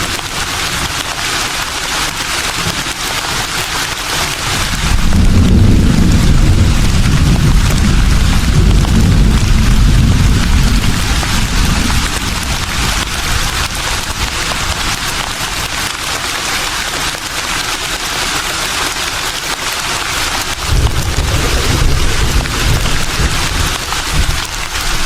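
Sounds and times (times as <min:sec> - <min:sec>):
leaves rustling in a breeze: 0:00.0 - 0:25.0
low wind rumble: 0:04.8 - 0:14.4, 0:20.7 - 0:25.0.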